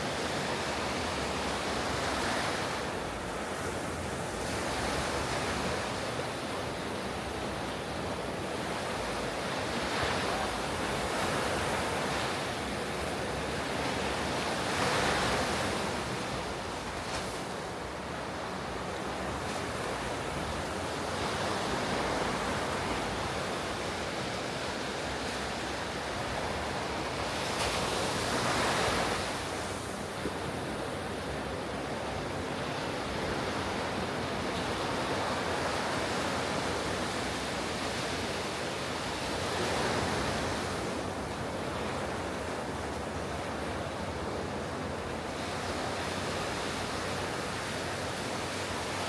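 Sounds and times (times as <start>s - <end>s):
ocean waves breaking: 0.0s - 49.0s.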